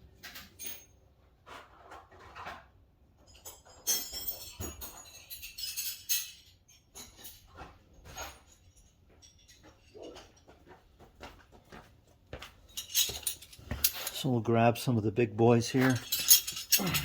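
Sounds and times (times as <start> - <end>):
metal tools clinking: 3.2 - 10.5, 12.6 - 14.9, 15.5 - 17.0.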